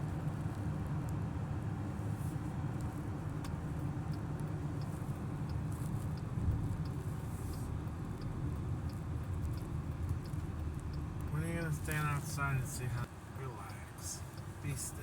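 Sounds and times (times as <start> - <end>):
engine and tyre rumble: 0.0 - 15.0
faint regular ticks: 2.8 - 13.1.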